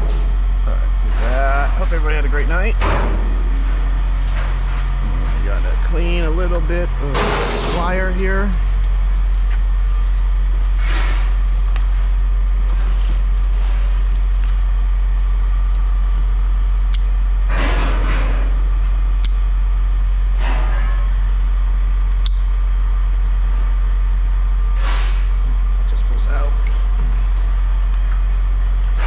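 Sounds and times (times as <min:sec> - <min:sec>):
low electrical hum: 0:00.0 - 0:29.0
wire rasping and scraping: 0:09.2 - 0:14.5.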